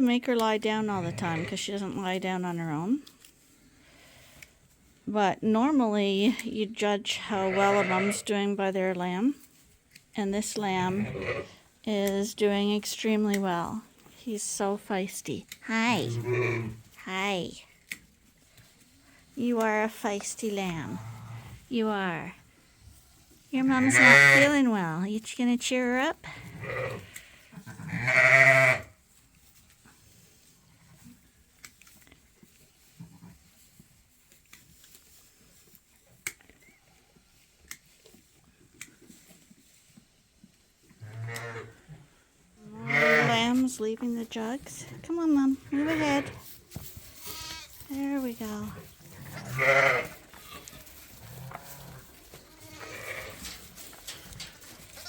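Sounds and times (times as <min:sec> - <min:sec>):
sheep bleating: 0:23.8 - 0:24.5, 0:27.7 - 0:28.9, 0:42.8 - 0:43.4, 0:47.3 - 0:47.7, 0:49.2 - 0:50.8
rustling straw and clicks: 0:27.0 - 0:41.0, 0:43.3 - 0:55.0.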